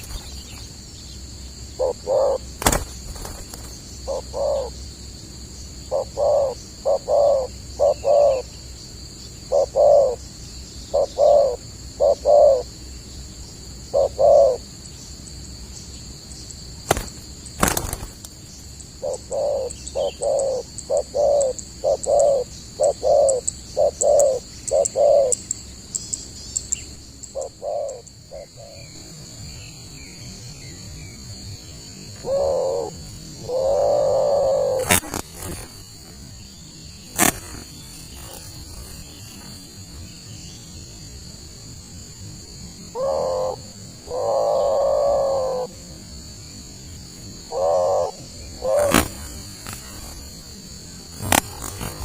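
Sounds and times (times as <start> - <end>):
high insect drone: 0.0 - 52.0
dove cooing: 1.7 - 4.8, 5.9 - 8.5, 9.5 - 10.2, 10.9 - 12.7, 13.9 - 14.6, 19.0 - 25.4, 27.4 - 28.9, 32.2 - 35.7, 43.0 - 45.8, 47.4 - 50.2.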